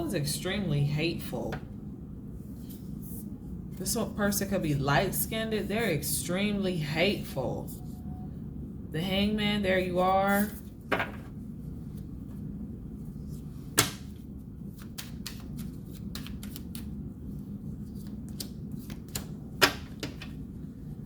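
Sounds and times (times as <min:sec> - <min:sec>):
steady low hum: 0:00.0 - 0:21.0
cards clicking and tapping: 0:14.8 - 0:16.9, 0:18.0 - 0:20.4.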